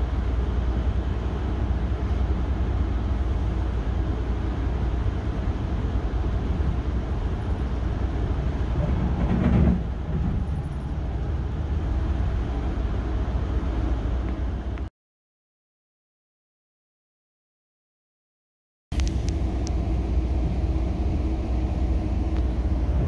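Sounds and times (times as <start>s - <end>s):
passenger train rumbling on rails: 0.0s - 14.9s, 19.0s - 23.0s.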